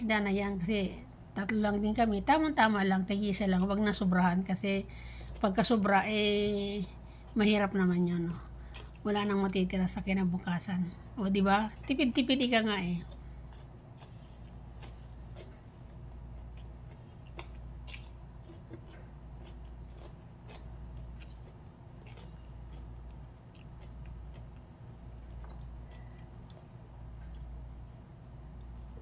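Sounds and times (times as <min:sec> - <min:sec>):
steady low hum: 0:00.0 - 0:29.0
person chewing: 0:13.0 - 0:29.0.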